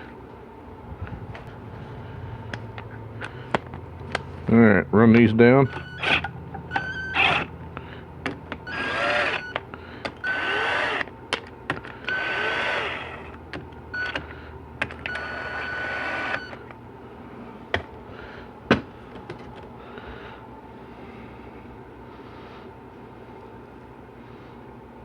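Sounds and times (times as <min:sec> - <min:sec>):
power tool motor whine: 0:05.7 - 0:07.6, 0:08.3 - 0:11.2, 0:11.8 - 0:13.4, 0:15.0 - 0:16.6.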